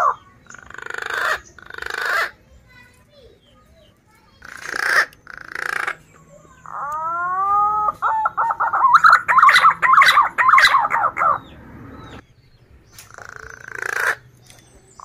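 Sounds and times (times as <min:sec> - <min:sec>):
pigeon whistling song: 0:04.6 - 0:12.3.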